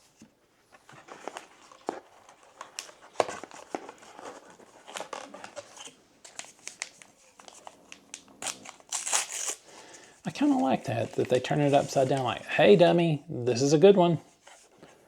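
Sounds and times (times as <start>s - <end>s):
foil wrapper crinkling and tearing: 1.2s - 12.1s.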